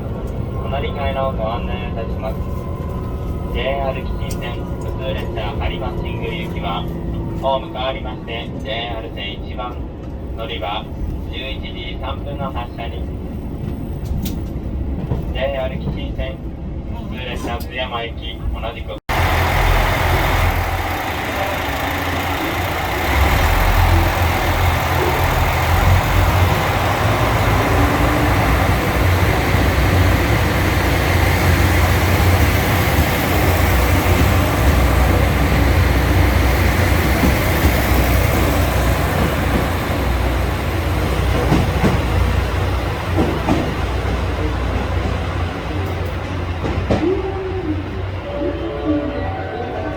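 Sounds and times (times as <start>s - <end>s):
diesel railcar engine drone: 0.0s - 15.1s, 18.4s - 49.9s
train wheels on rails: 13.3s - 16.4s, 19.1s - 48.2s.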